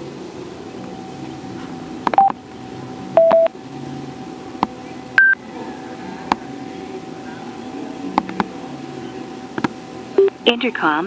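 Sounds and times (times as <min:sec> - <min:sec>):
short electronic beeps: 0:03.2 - 0:03.5.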